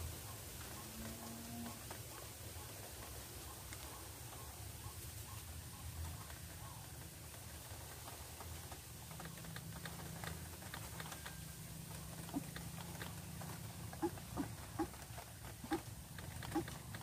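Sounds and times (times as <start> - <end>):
bird dry clicking calls: 0.0 - 17.0
bird low croaks: 11.9 - 17.0.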